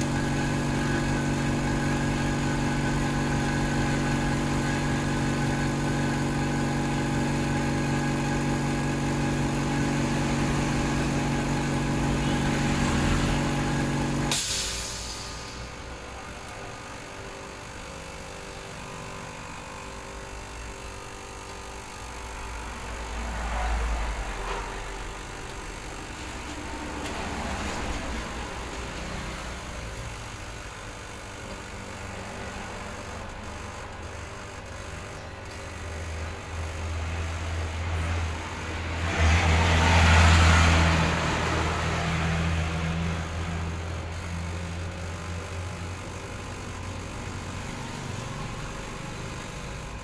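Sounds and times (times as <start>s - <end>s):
motor hum: 0.0s - 14.4s, 15.3s - 50.0s.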